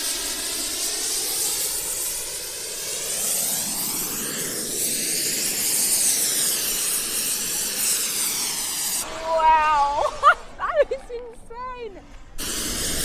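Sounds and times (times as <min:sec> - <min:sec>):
model jet flying past: 0:00.0 - 0:10.6
person speaking: 0:09.0 - 0:12.1.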